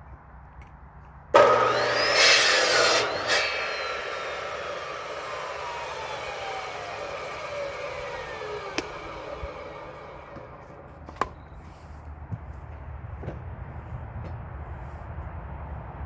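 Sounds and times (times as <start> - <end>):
saw blade spinning down: 1.4 - 10.8
low hum: 1.4 - 11.0.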